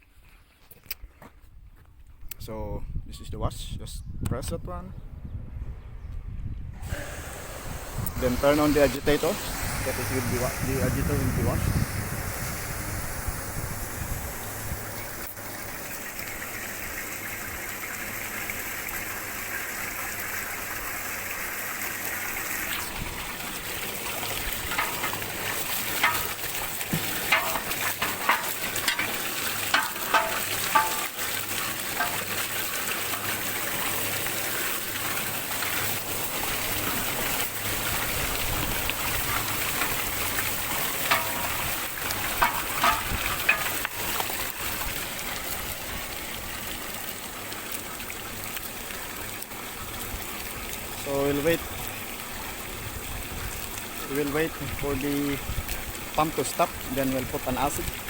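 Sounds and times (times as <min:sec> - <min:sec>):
pump running with steady hiss: 0:06.8 - 0:58.0
water spraying inside a vat: 0:06.8 - 0:58.0
short water splashes: 0:14.0 - 0:58.0.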